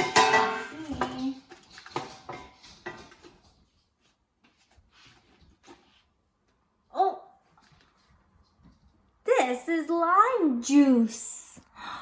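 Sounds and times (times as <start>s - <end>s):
person speaking: 9.2s - 11.6s.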